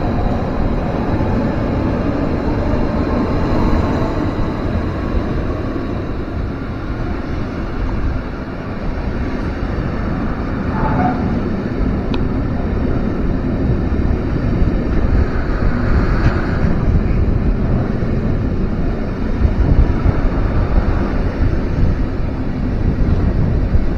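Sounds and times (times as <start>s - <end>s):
train rumbling past: 0.0s - 23.9s
faint tone: 10.6s - 11.5s.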